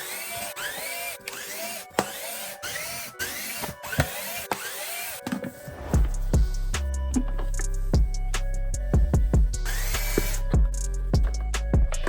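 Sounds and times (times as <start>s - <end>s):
power drill whining: 0.0s - 6.0s, 9.6s - 10.6s.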